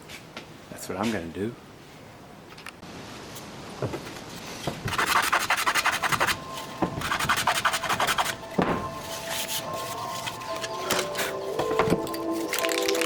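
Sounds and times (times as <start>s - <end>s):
faint music tones: 5.0s - 13.0s.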